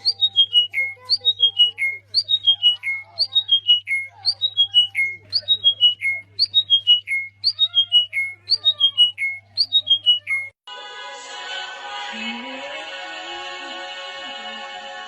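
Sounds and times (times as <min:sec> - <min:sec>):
songbird whistling phrase: 0:00.0 - 0:10.6.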